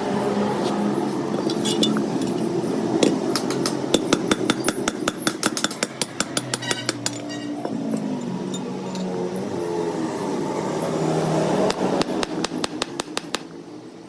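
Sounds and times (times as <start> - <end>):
rapid metallic tapping: 3.0 - 7.3.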